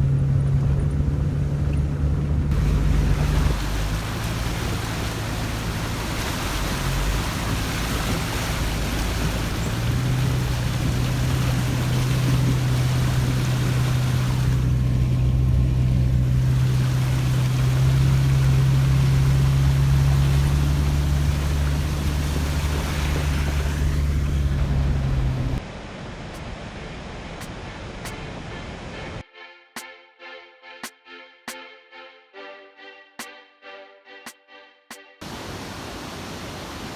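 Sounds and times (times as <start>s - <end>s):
tyre and road noise: 0.0s - 25.6s
car engine drone: 0.0s - 26.0s.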